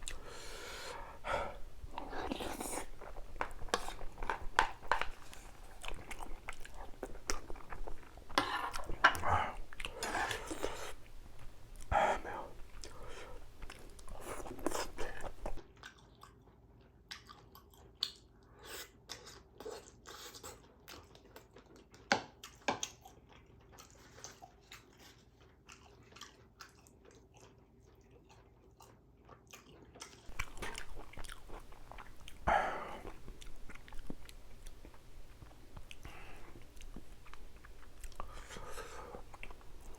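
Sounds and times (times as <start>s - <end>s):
person chewing and biting food: 0.0s - 11.1s, 19.1s - 39.9s.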